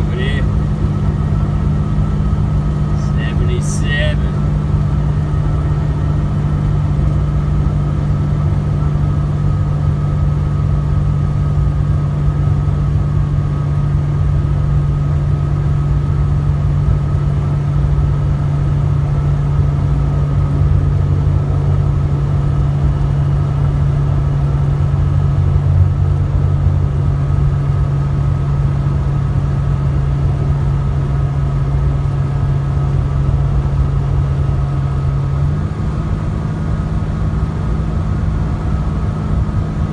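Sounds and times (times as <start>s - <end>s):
road noise: 0.0s - 39.9s
truck engine droning: 0.0s - 39.9s.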